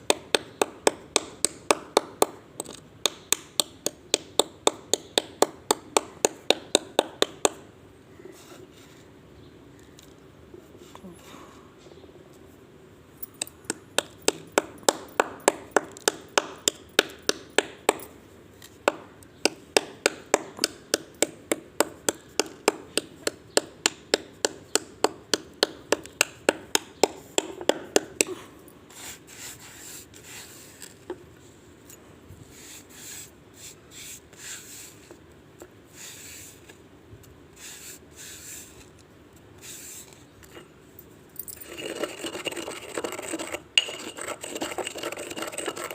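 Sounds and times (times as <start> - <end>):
grinding and rubbing: 41.5 - 45.9.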